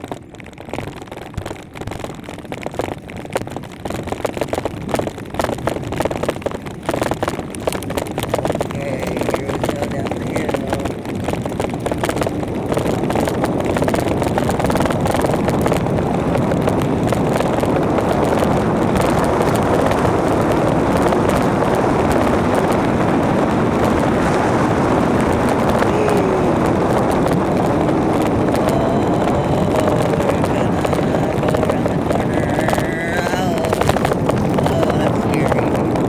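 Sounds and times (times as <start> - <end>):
bike rolling rumble: 0.0 - 36.0
wind on microphone: 0.0 - 36.0
faint gliding whine: 23.8 - 35.7.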